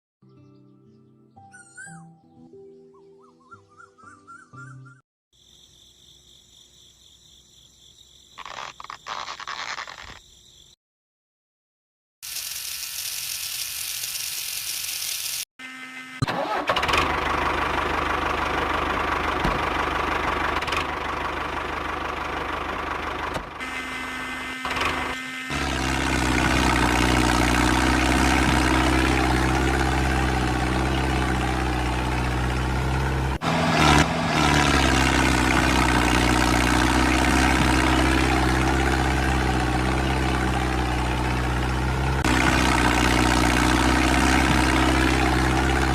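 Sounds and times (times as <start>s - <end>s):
small tractor motor running: 12.3s - 45.9s.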